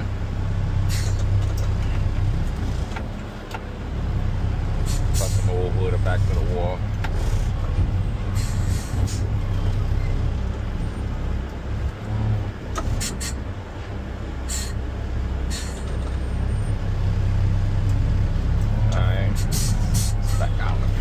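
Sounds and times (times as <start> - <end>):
garbage truck diesel engine running: 0.0 - 21.0
short air hisses: 14.5 - 14.8.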